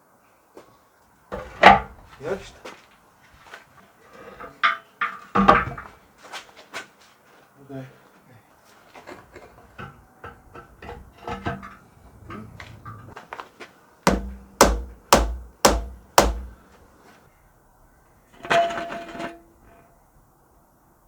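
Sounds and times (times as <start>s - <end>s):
light knocks and clatter: 8.9s - 13.4s
loud hammer blows: 14.1s - 16.6s.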